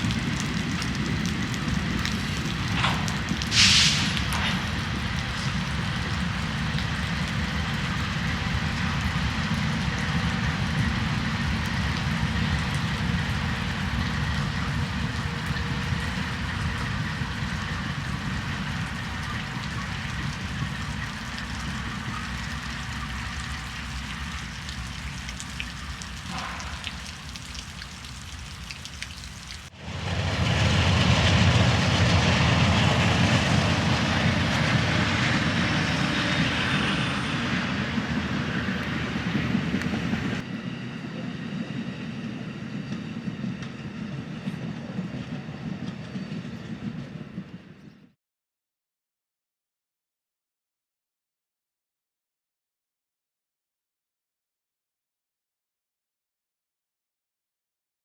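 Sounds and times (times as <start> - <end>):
rain: 0.0 - 40.4
freight train rumbling: 0.0 - 48.2.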